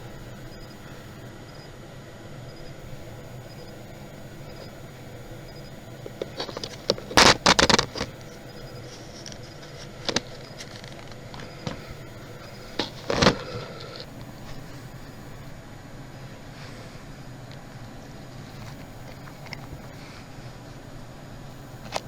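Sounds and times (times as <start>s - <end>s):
clicks: 21.6s - 22.0s.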